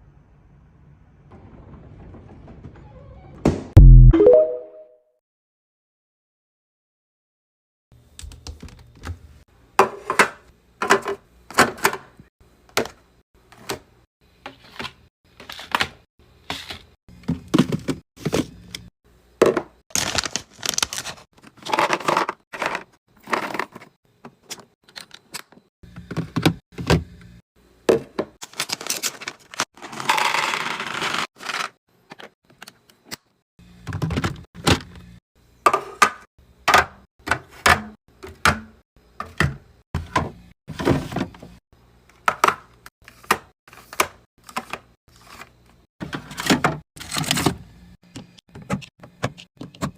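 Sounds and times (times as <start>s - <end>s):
food containers knocking and clinking: 19.4s - 19.8s.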